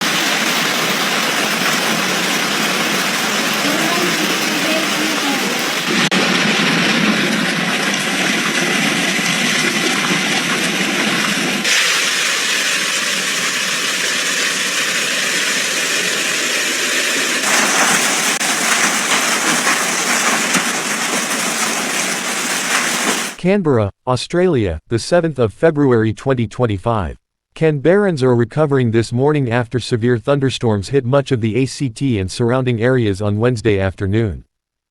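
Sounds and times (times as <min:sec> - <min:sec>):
hailstones pelting: 0:00.0 - 0:06.1, 0:11.6 - 0:23.4
heavy rain downpour: 0:00.0 - 0:23.4.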